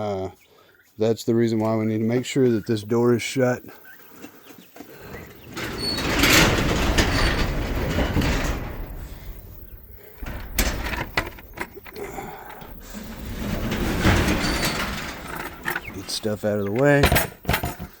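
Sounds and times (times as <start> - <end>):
sliding door rumbling on track: 5.2 - 17.2.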